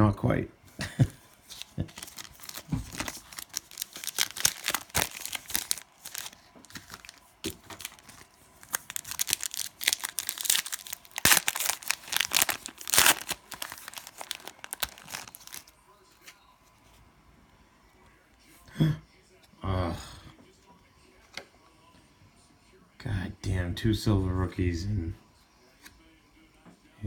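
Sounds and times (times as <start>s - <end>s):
cellophane wrapper crinkling: 1.4s - 15.7s.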